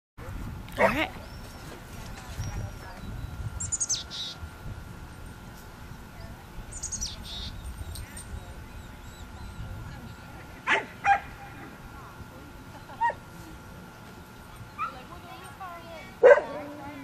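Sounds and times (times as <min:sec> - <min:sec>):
bird chirping: 0:03.0 - 0:04.4, 0:06.7 - 0:10.3.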